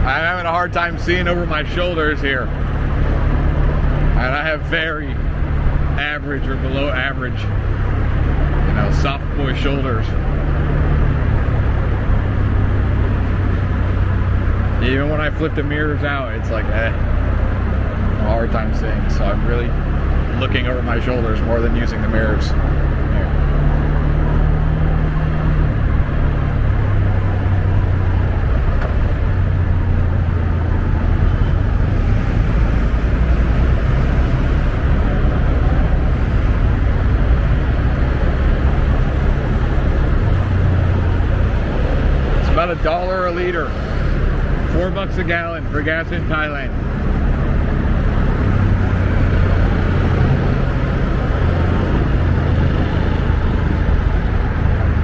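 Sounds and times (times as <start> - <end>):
wind and road noise: 0.0 - 55.0
scooter engine: 22.4 - 55.0.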